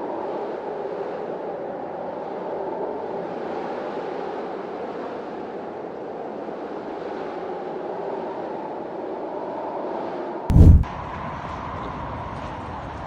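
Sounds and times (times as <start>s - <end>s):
strong wind rushing: 10.5s - 11.0s.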